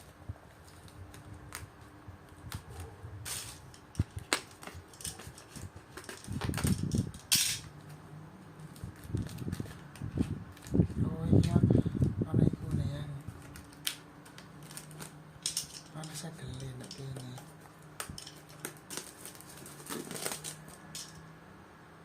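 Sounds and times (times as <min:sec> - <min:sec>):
packaging rustling: 0:03.6 - 0:06.9, 0:08.6 - 0:11.0, 0:13.2 - 0:21.2.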